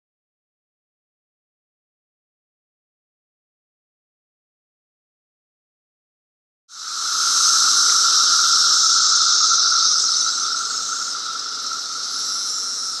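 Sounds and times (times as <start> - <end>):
cicadas buzzing: 6.7 - 13.0.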